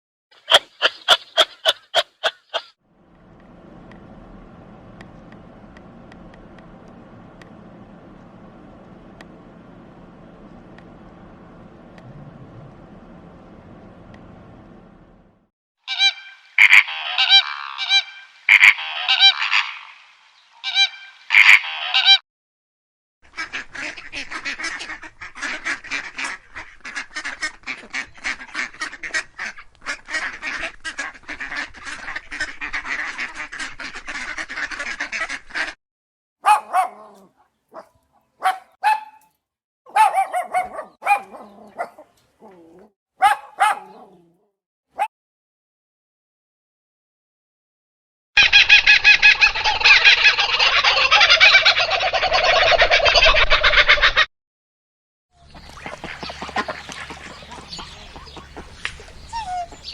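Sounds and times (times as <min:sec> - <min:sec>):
bird calls and chattering: 0:00.4 - 0:02.7, 0:40.8 - 0:42.7, 0:55.4 - 0:59.9.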